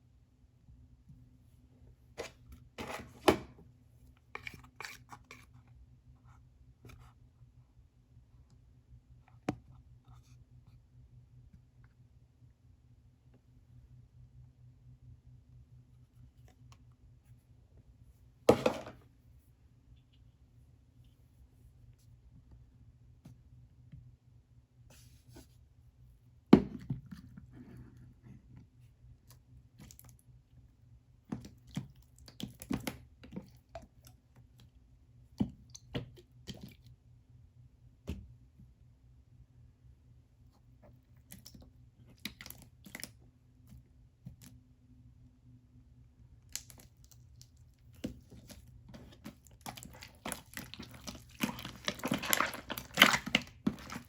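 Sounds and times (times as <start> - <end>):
pastry crunching and crinkling: 46.4 - 54.0.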